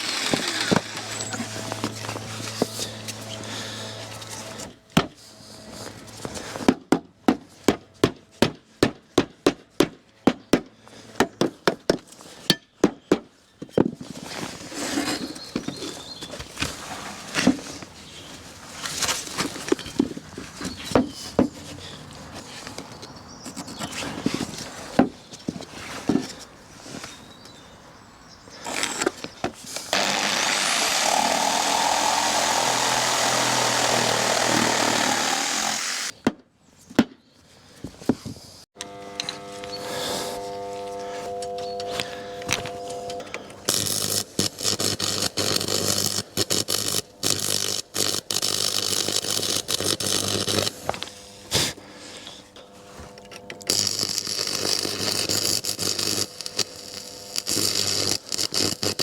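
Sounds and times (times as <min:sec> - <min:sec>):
power tool running: 0:00.0 - 0:04.8, 0:29.9 - 0:36.2, 0:38.8 - 0:59.0.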